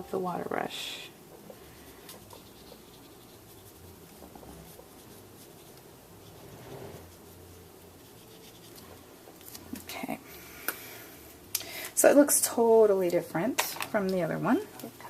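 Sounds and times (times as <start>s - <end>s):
water brush strokes on paper: 1.5s - 9.1s.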